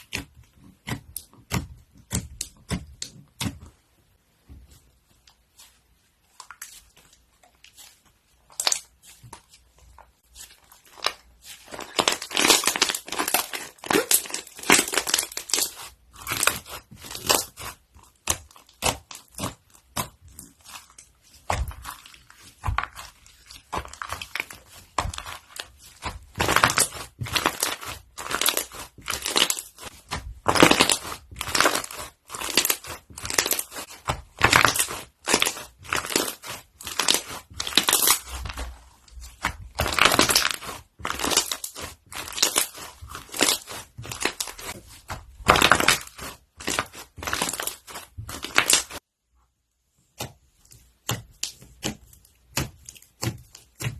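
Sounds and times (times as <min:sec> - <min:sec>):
slime crackling and popping: 0:10.4 - 0:49.0.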